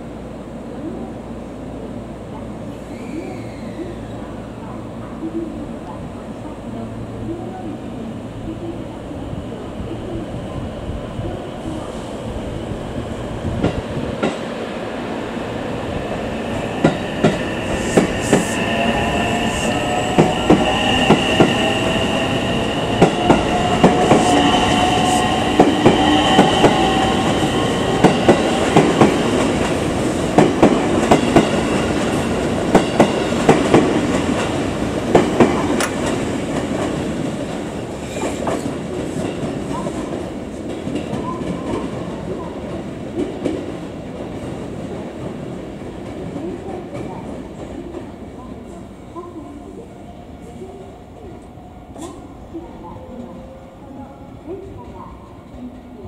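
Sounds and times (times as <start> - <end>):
electric train whine rising: 16.1 - 29.1
train wheels clattering over rails: 16.5 - 42.1.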